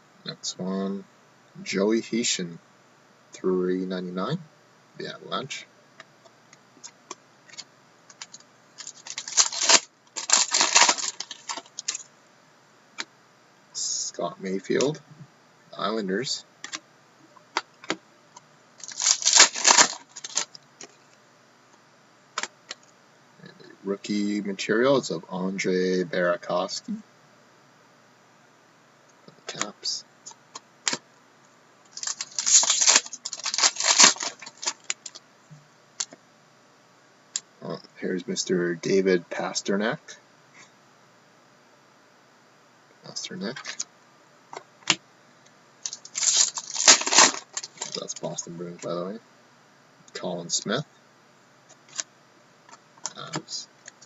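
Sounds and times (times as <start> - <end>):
cards and packaging rustling: 7.5 - 12.1, 18.8 - 21.0, 31.9 - 35.2, 45.8 - 48.9.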